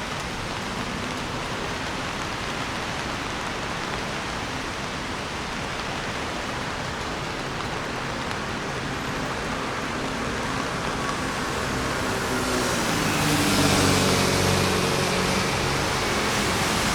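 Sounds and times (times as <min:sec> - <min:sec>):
rain falling on street: 0:00.0 - 0:16.9
vehicle engine approaching: 0:08.9 - 0:16.9.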